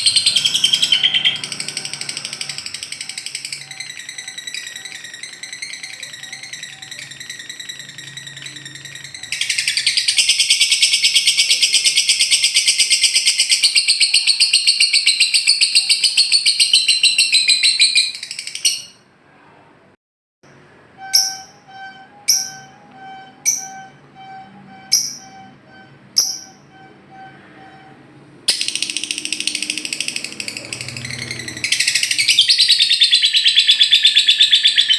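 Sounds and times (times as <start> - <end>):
bird chirps: 0.0 - 19.0, 21.0 - 34.9
lovebird chattering and trilling: 0.0 - 19.0, 26.2 - 26.9, 28.5 - 34.9.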